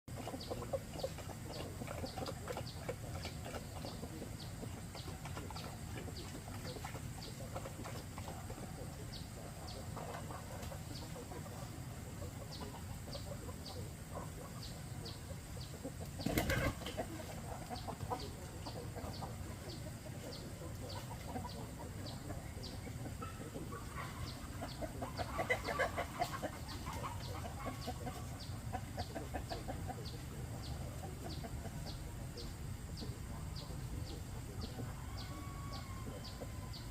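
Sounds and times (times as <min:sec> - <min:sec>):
chickens clucking: 0:00.1 - 0:36.9
chickens squawking: 0:00.1 - 0:36.9
wings flapping: 0:16.2 - 0:17.0.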